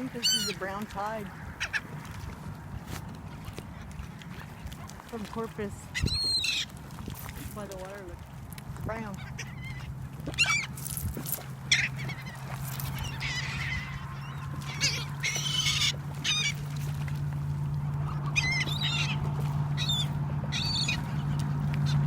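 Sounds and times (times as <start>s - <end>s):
seagulls calling: 0.0s - 7.0s, 8.9s - 22.0s
steady low hum: 0.0s - 22.0s.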